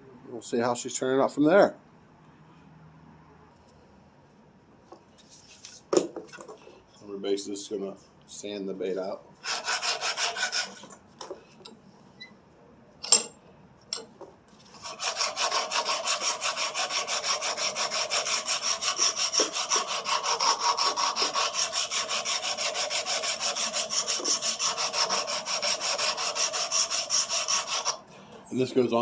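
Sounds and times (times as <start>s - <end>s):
sandpaper rubbing on wood: 9.5s - 10.8s, 14.7s - 28.0s.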